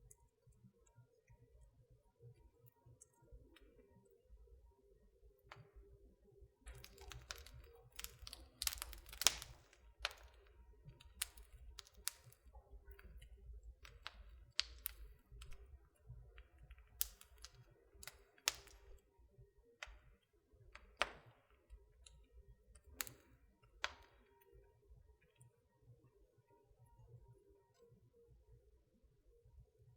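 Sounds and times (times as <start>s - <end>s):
fire crackling and popping: 6.7s - 19.0s, 19.8s - 24.3s.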